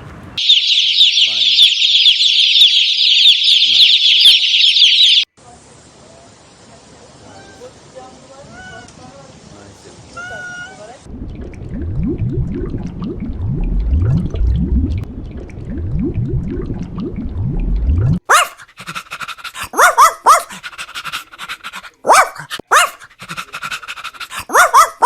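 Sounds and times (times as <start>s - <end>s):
dog yelping and whimpering: 19.6s - 20.6s, 24.3s - 25.0s.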